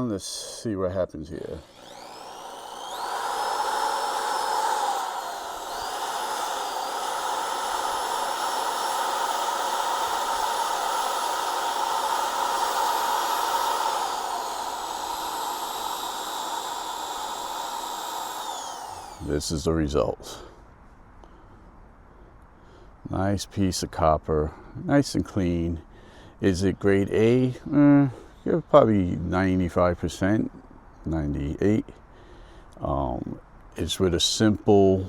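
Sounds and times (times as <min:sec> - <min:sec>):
power tool whine: 0:01.4 - 0:19.7.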